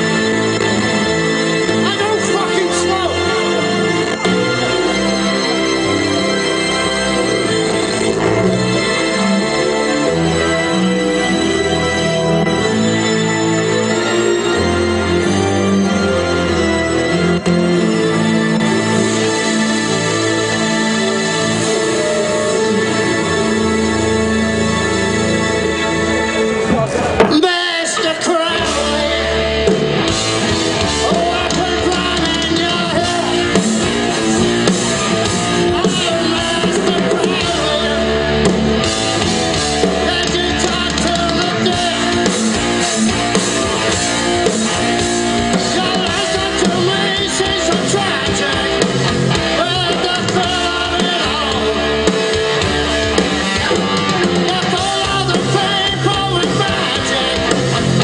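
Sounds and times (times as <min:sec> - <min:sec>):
drum kit: 0:00.0 - 0:14.6, 0:17.2 - 0:58.0
bass guitar: 0:00.0 - 0:58.0
electric guitars: 0:00.0 - 0:58.0
person singing: 0:17.3 - 0:29.9, 0:30.7 - 0:38.6, 0:39.6 - 0:58.0.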